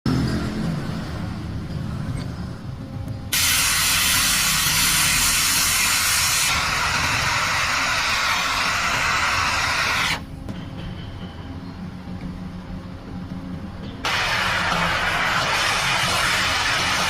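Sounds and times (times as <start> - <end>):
loud steady hiss: 3.3 - 10.4, 14.0 - 17.0.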